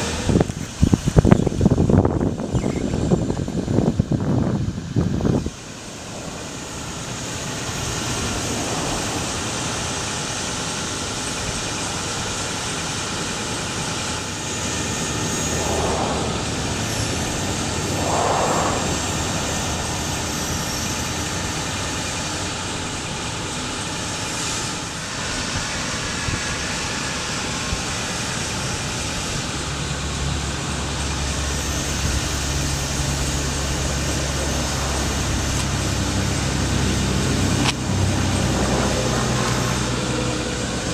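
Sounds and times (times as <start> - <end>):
truck running with mechanical hum: 0.0 - 40.9
deep low engine hum: 3.1 - 12.0, 13.4 - 23.2.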